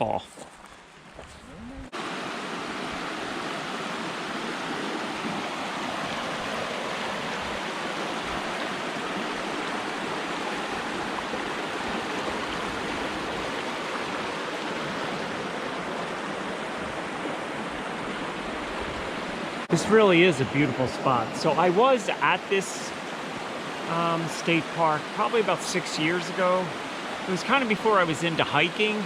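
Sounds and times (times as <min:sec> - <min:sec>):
woodland stream rushing: 0:00.0 - 0:29.0.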